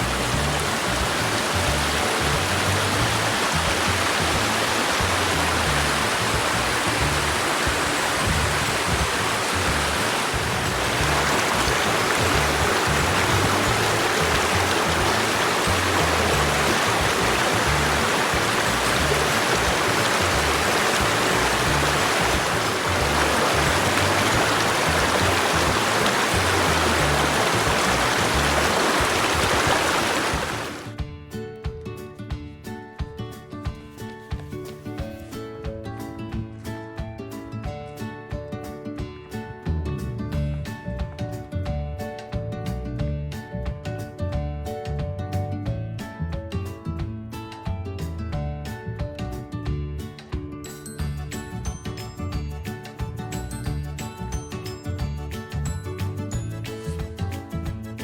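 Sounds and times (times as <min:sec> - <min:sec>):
steady rushing noise: 0:00.0 - 0:30.9
background music: 0:00.0 - 0:58.0.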